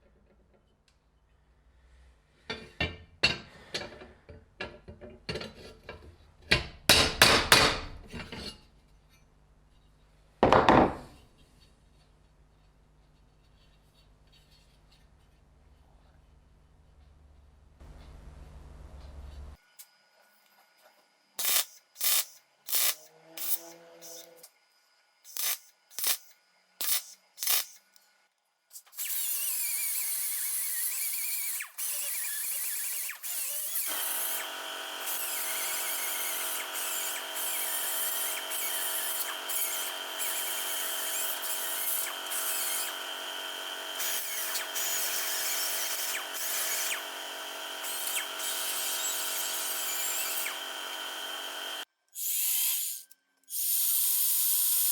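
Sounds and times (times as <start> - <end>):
electric power tool running: 31.0 - 51.8.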